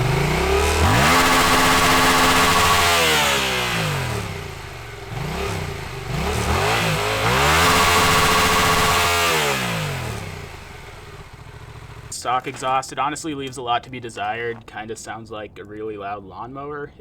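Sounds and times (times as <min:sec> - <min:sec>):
motorcycle engine revving: 0:00.0 - 0:12.8.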